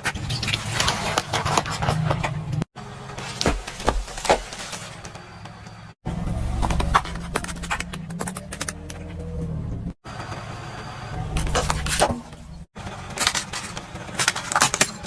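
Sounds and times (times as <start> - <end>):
tyres crushing crunchy objects: 0.0 - 5.2, 6.4 - 9.0
car engine running low: 1.4 - 15.0.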